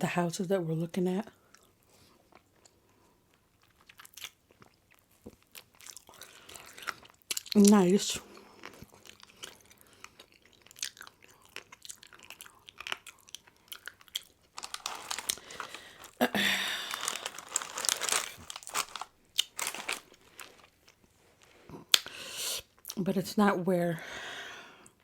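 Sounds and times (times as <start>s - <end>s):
close chewing with mouth clicks: 1.3s - 16.2s, 16.9s - 21.1s
crunchy bites of crust: 3.6s - 21.0s.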